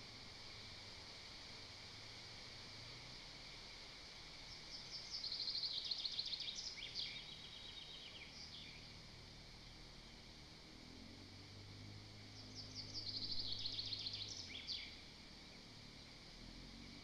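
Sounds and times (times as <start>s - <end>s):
steady outdoor hiss: 0.0s - 17.0s
songbird singing: 4.4s - 10.4s, 11.2s - 17.0s.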